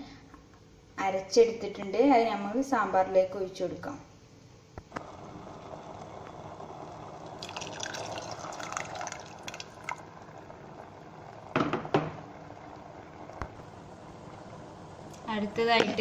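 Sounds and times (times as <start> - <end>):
paste pouring into a pot: 7.3 - 10.2.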